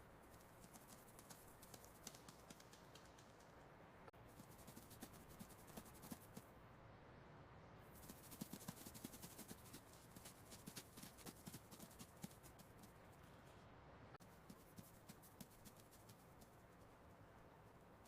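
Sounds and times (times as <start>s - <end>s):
mouse feet scurrying: 0.2s - 3.5s.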